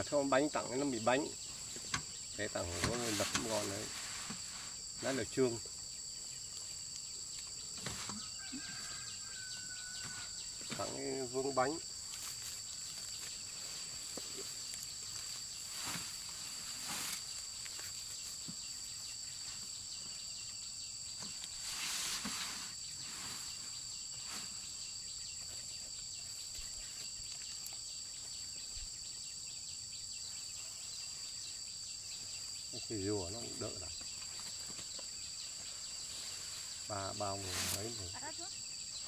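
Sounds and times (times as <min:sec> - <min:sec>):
insects trilling: 0:00.0 - 0:39.0.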